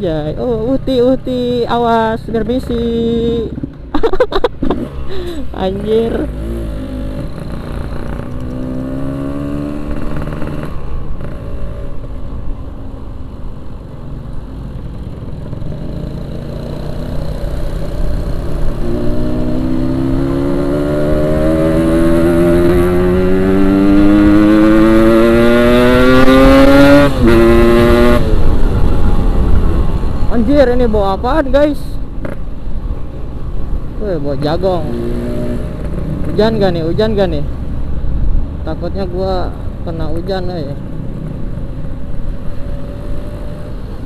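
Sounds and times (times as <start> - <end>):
two-stroke motorcycle engine accelerating: 5.8 - 11.8, 15.1 - 29.8.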